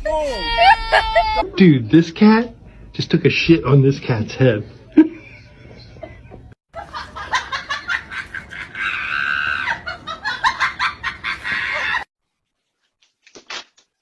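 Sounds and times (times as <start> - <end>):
high-pitched voice shrieking: 0.0 - 1.4.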